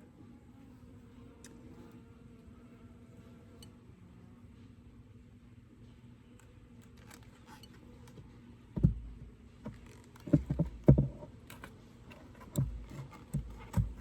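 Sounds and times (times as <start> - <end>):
low steady hum: 0.0 - 14.0
wooden frames knocking: 8.8 - 9.2, 10.2 - 11.2.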